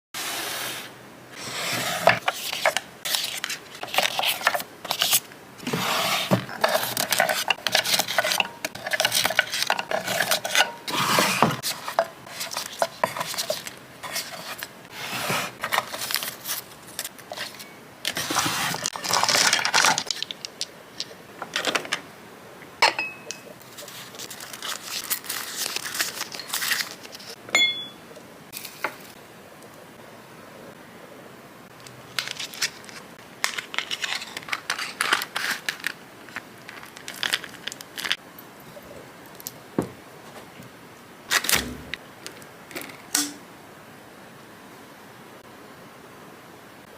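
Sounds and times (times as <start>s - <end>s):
paper or plastic wrapping rustling: 1.8s - 20.4s, 23.6s - 27.4s, 32.1s - 38.2s.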